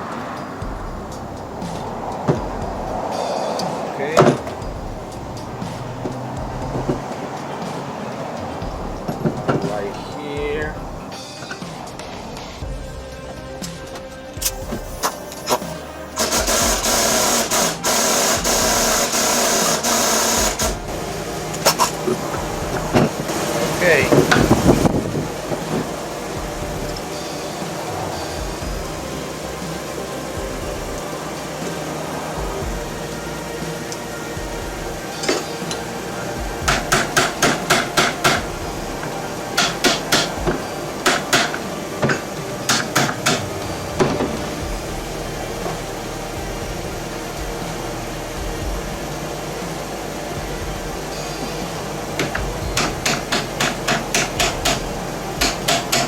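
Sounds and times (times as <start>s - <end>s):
power ratchet spinning bolt: 14.4s - 20.8s
hammer striking metal: 35.1s - 44.7s, 52.1s - 56.0s.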